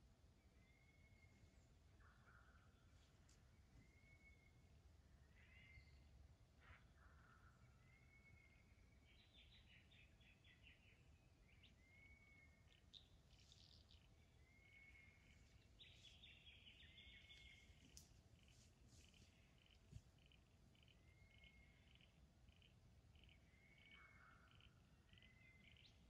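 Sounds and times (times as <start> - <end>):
bird chirps: 7.5 - 26.0.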